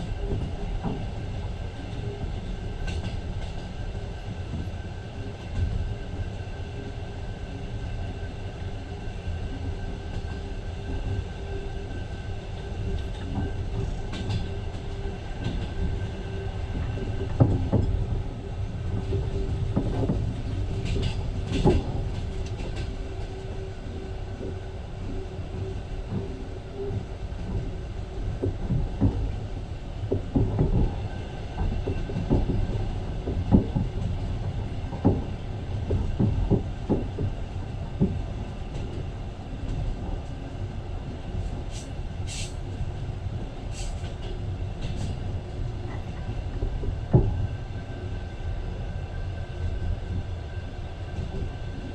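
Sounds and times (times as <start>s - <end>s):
train rumble: 0.0s - 51.9s.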